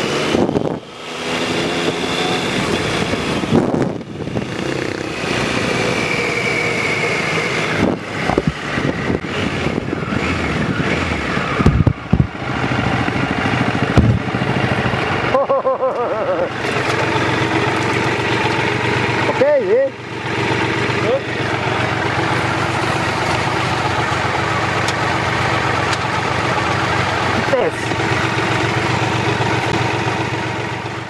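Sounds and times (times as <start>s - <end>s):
vehicle engine running: 0.0s - 31.0s
sharp knocks: 13.9s - 14.2s.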